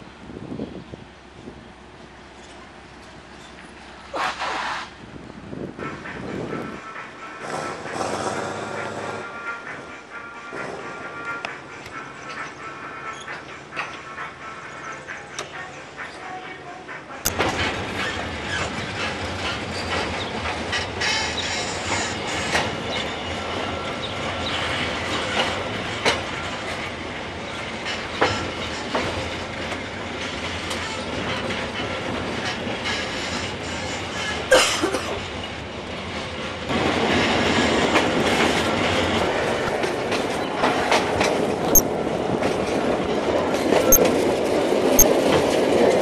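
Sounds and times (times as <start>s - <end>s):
diesel train rumbling on rails: 0.0s - 46.0s
train wheels clicking: 7.4s - 12.5s, 17.3s - 35.4s, 36.1s - 46.0s.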